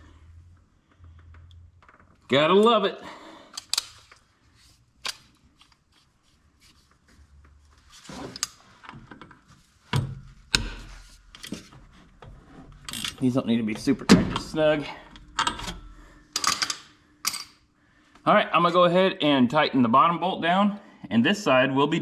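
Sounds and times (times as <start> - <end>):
metallic clicks of hand tools: 3.5 - 4.2.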